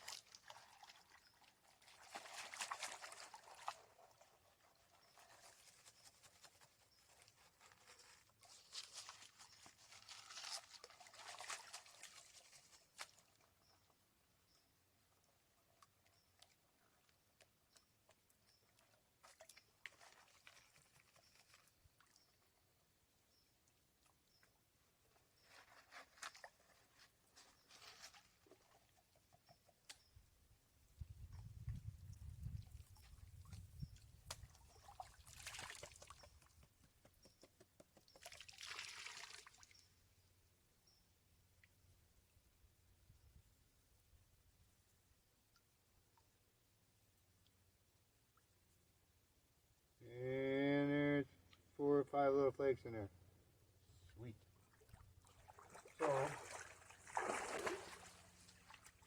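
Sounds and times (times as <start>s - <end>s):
water and gravel sloshing in pan: 0.0s - 6.0s
gravel and water swishing in pan: 0.0s - 13.6s, 31.4s - 36.7s, 54.7s - 59.0s.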